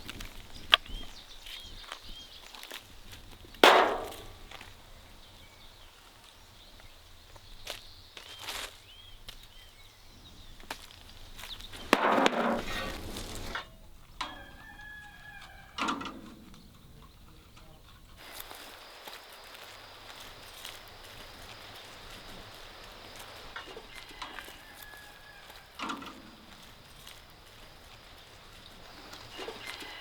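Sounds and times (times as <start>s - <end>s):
small birds chirping: 0.0s - 3.6s, 4.4s - 30.0s
axe splitting firewood: 3.6s - 4.4s, 11.8s - 13.6s, 25.8s - 26.7s
rooster crowing: 14.2s - 15.9s, 23.4s - 27.2s, 28.8s - 30.0s.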